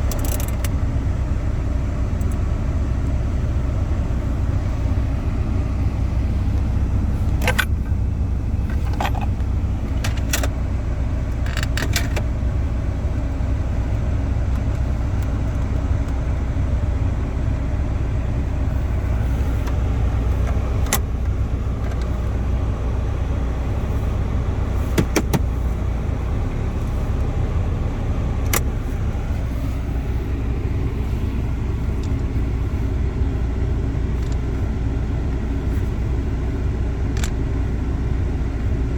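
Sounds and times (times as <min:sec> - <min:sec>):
car cabin rumble: 0:00.0 - 0:38.9
control knob and button clicks: 0:24.9 - 0:25.5, 0:28.4 - 0:28.8.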